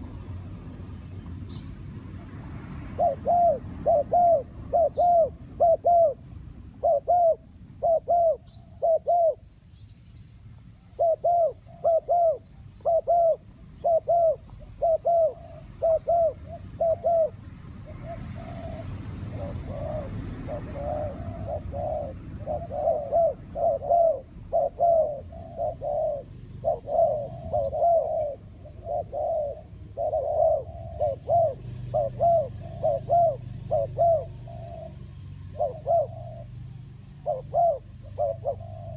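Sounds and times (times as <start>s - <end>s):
dove cooing: 2.8s - 9.5s, 10.8s - 38.9s.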